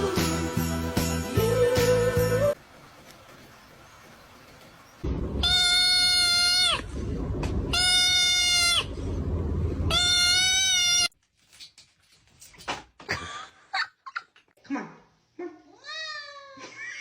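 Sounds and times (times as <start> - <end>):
low rumble: 6.7 - 7.9, 8.8 - 10.0.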